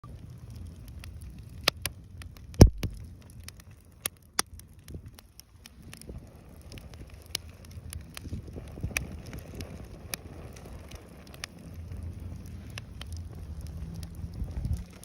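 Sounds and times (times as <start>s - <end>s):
low rumble: 0.0s - 3.9s, 4.6s - 15.0s
bonfire crackling and popping: 0.0s - 15.0s.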